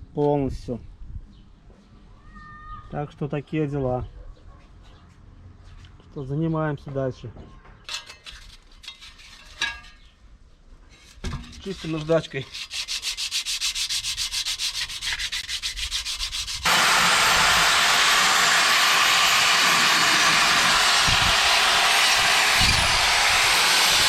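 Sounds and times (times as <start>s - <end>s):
sandpaper rubbing on metal: 11.6s - 16.7s.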